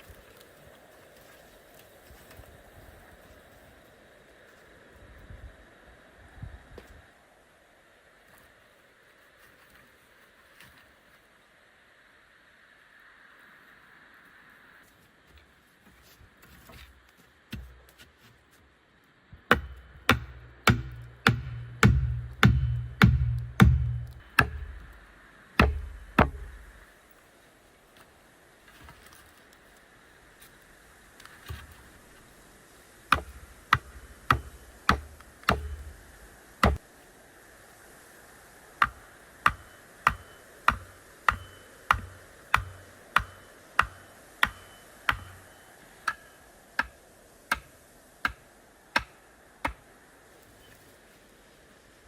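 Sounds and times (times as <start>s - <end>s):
repeated hard strikes: 19.5s - 25.0s, 25.6s - 26.8s
heavy low thuds: 19.5s - 26.8s.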